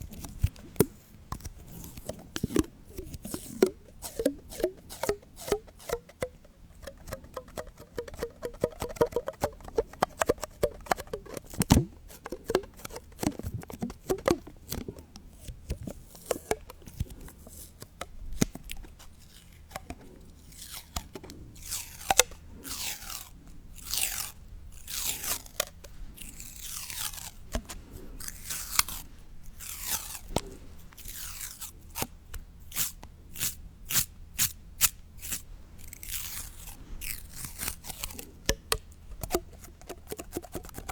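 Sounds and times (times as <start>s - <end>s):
scratchy strokes falling in pitch: 1.6s - 15.1s
crunching and crackling clicks: 5.4s - 23.2s.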